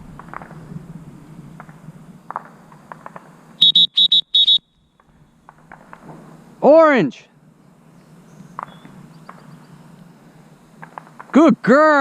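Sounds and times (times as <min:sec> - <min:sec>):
shrill dog whistle toots: 0:03.6 - 0:04.7.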